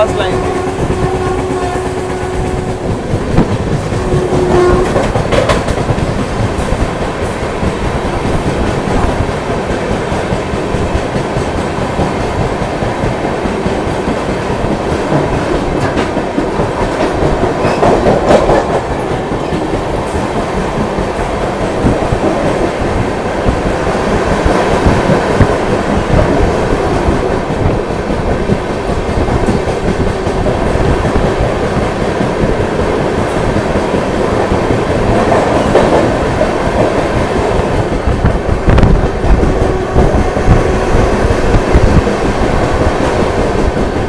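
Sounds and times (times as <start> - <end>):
train wheels rumbling on rail: 0.0 - 44.0
wheels clacking over rail joints: 0.4 - 22.6.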